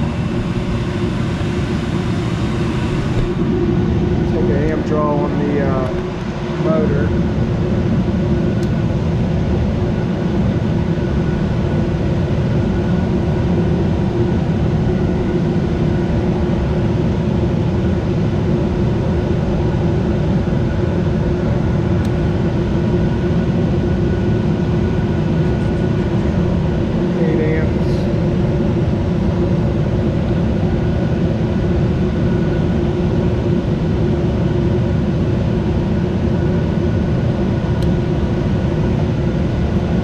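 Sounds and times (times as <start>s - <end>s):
furnace air whoosh: 0.0s - 7.8s
faint motor hum: 0.0s - 11.0s.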